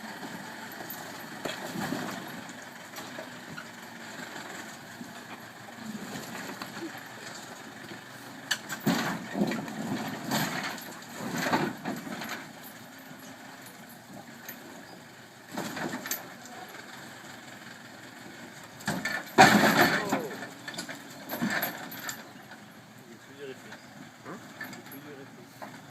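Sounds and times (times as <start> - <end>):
tractor engine running: 0.0 - 25.9
loud knocks and rattles: 18.8 - 20.5.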